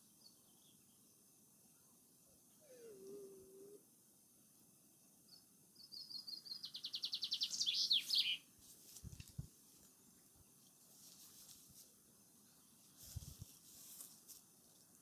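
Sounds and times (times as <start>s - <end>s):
songbird trilling: 5.8s - 8.4s.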